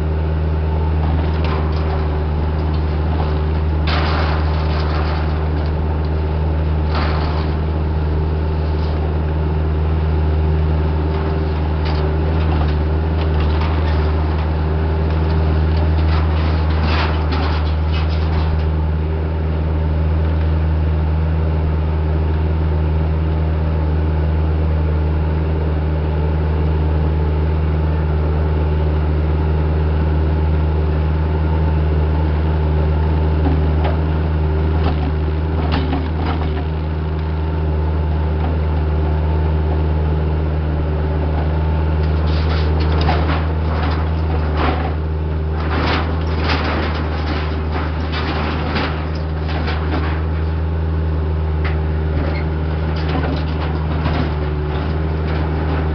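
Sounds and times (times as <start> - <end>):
diesel engine running: 0.0 - 55.9
rattling and knocking: 1.1 - 9.2, 11.2 - 18.8, 42.1 - 50.7.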